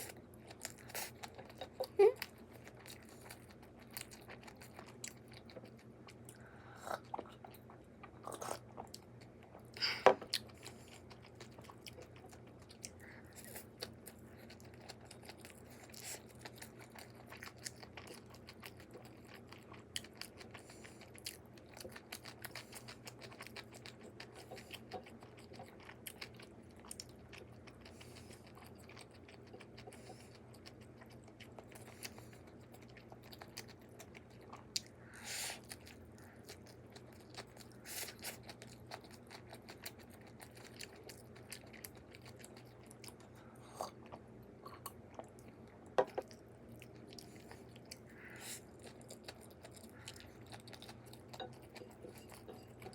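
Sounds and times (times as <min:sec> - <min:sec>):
person chewing food: 0:00.0 - 0:52.9.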